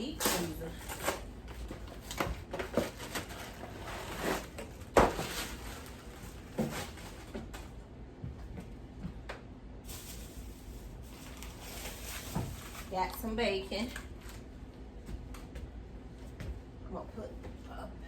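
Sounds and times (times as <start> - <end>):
packages knocking and bumping: 0.2 - 7.8.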